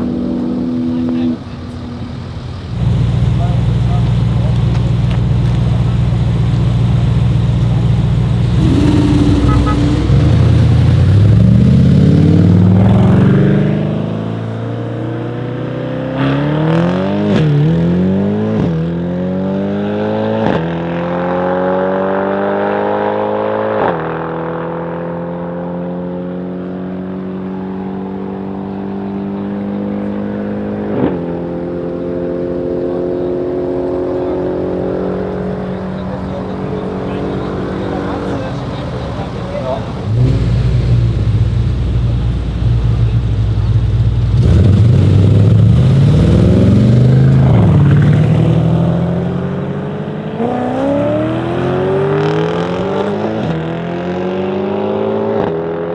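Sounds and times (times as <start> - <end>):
car engine at full throttle: 0.0 - 55.9
exhaust pop: 0.9 - 13.1.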